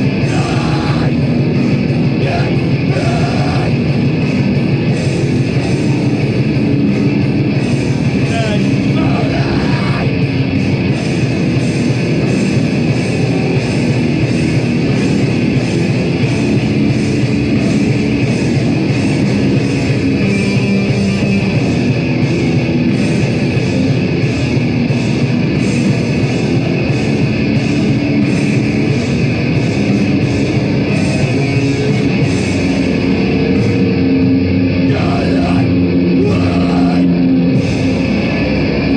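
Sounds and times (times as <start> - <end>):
distorted guitars: 0.0 - 38.9
drums pounding: 0.0 - 38.9.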